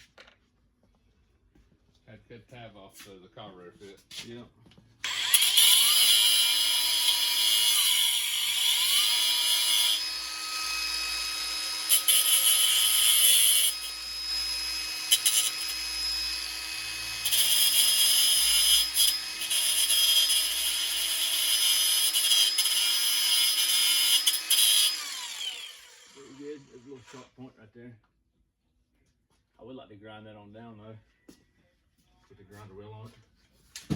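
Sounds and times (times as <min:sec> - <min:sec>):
electric grinder whining: 0:05.0 - 0:27.2
harsh metal grinding: 0:05.0 - 0:27.2.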